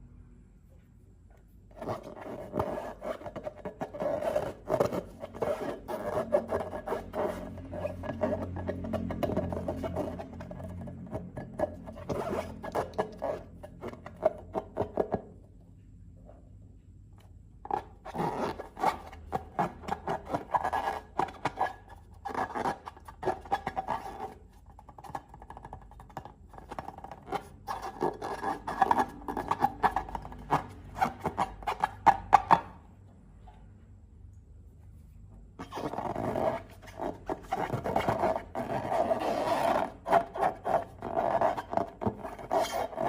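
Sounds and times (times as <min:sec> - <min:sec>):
slime crackling and scraping: 0:35.6 - 0:43.0.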